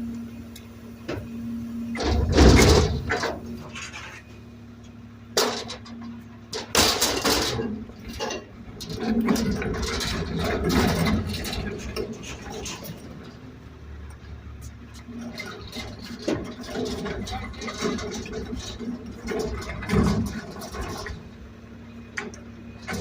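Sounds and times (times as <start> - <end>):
garbage truck engine running: 0.0 - 23.0
trash and cans clattering: 2.0 - 4.1, 5.4 - 13.0, 15.2 - 21.2.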